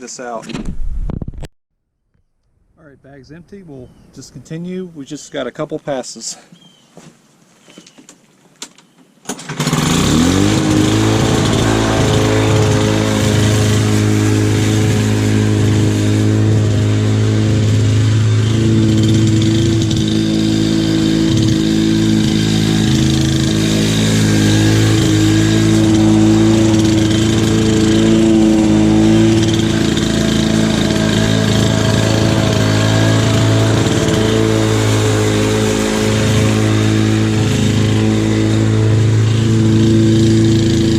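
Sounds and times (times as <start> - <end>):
lawn mower engine running: 9.3 - 40.9.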